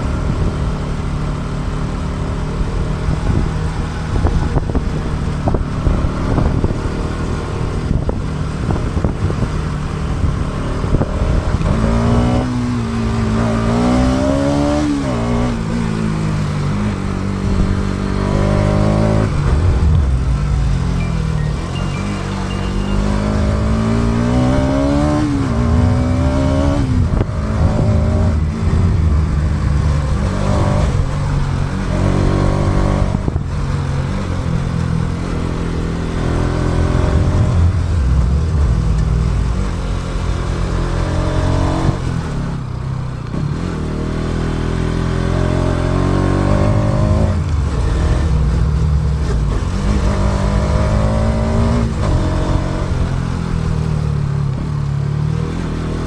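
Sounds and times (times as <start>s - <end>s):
motorcycle engine accelerating: 0.0s - 56.0s
rushing wind noise: 2.6s - 43.6s.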